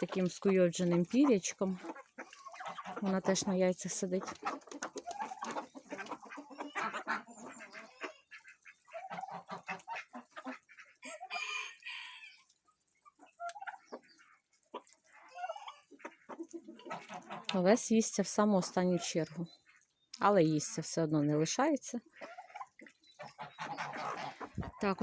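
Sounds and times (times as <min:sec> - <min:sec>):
chickens clucking: 0:00.0 - 0:25.0
rooster crowing: 0:11.1 - 0:12.4.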